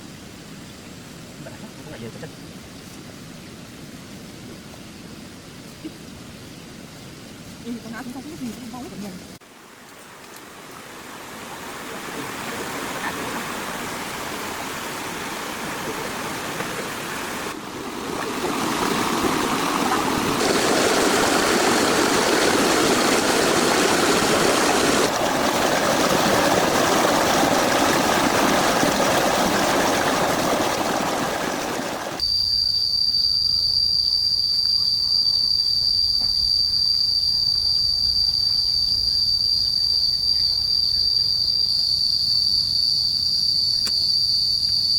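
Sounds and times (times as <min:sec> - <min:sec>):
crickets trilling: 0:00.0 - 0:44.9
steady rushing noise: 0:12.9 - 0:32.2.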